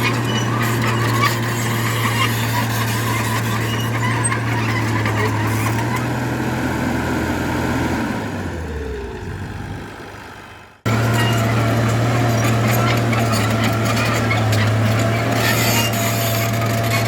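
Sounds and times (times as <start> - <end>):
scraping and squealing: 0.0 - 6.6, 10.9 - 17.0
diesel engine under load: 0.0 - 17.0.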